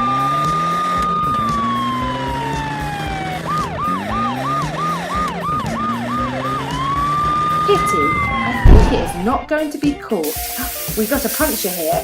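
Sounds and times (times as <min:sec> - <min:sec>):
police siren wailing and yelping: 0:00.0 - 0:09.3.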